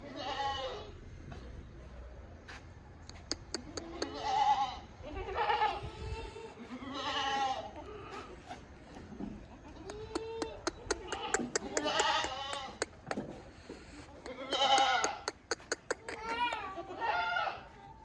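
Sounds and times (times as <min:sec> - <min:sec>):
goats bleating: 0:00.0 - 0:00.9, 0:03.4 - 0:08.5, 0:09.5 - 0:17.9
sharp clicks: 0:09.9 - 0:13.2.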